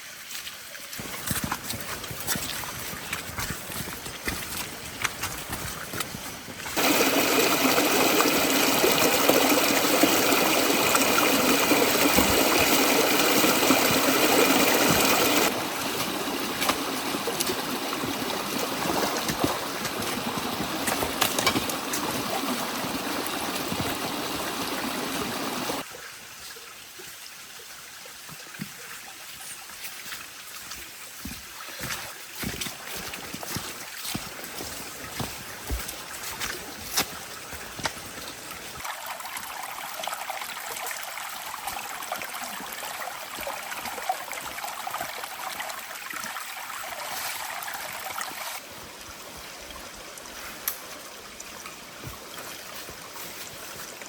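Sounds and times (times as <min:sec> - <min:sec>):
drips and taps: 0:01.1 - 0:24.9
rain falling: 0:06.8 - 0:25.8.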